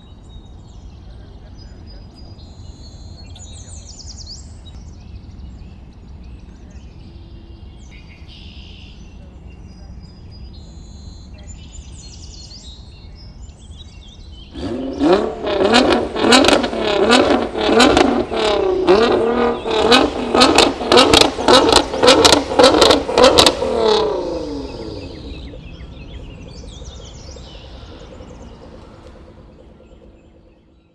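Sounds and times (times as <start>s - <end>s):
car engine revving: 14.5s - 30.9s
exhaust cracks: 14.6s - 30.9s.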